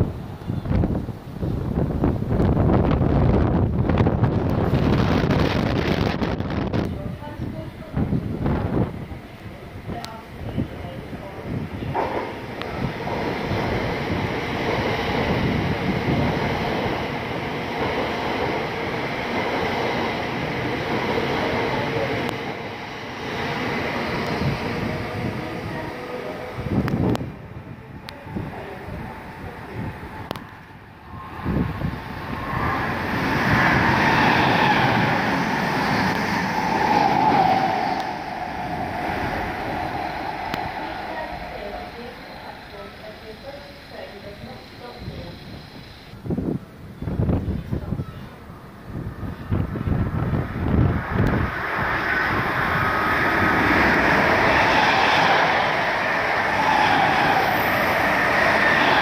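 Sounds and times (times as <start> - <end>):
train whine: 0.0 - 46.3, 48.5 - 59.0
train wheels on rails: 2.3 - 27.3, 28.1 - 46.2, 49.4 - 59.0
train whine sinking in pitch: 31.0 - 46.1, 50.8 - 59.0.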